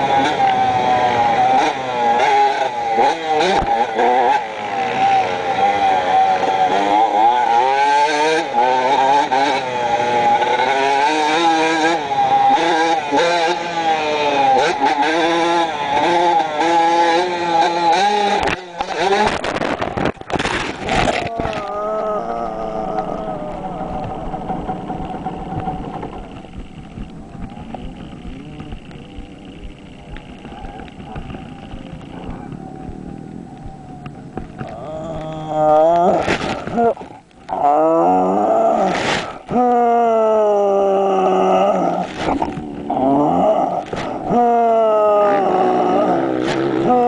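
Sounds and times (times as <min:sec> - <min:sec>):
dirt bike engine revving: 0:00.0 - 0:47.0
motorbike crashing: 0:18.3 - 0:37.6.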